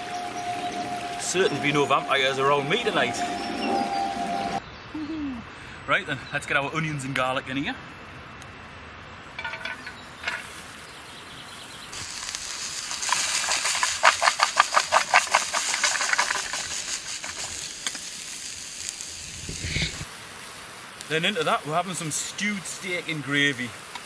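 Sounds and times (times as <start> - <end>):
onions sizzling in a frying pan: 11.9 - 24.0
quick scraping in a pan: 12.0 - 20.0.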